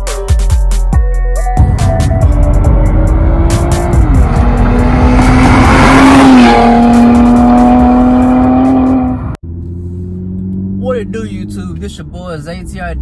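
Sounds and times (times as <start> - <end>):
car engine accelerating: 1.6 - 13.0
car passing rush: 2.4 - 11.7.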